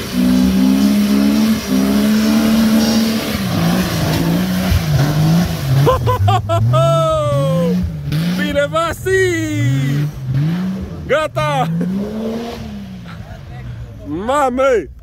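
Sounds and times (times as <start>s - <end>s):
engine revving under load: 0.0s - 13.8s.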